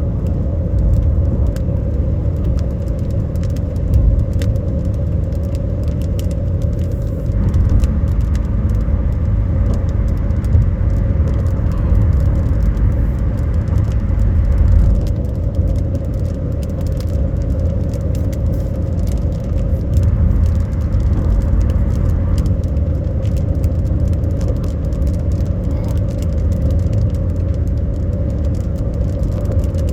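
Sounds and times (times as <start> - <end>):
road and engine rumble: 0.0 - 29.9
light ticks: 0.2 - 29.9
steady hum: 5.6 - 15.3.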